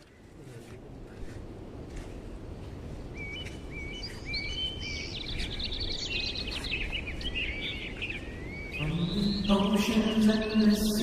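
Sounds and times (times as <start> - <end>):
birds singing: 2.7 - 11.0.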